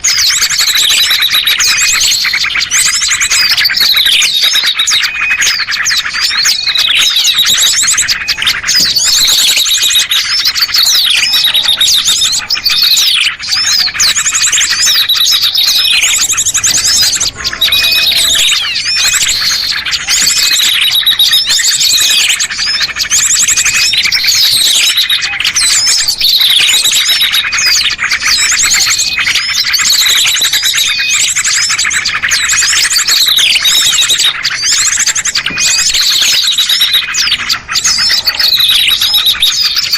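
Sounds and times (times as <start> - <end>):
small songbirds chirping and trilling: 0.0 - 39.9
sweeping falling bird call: 0.0 - 39.9.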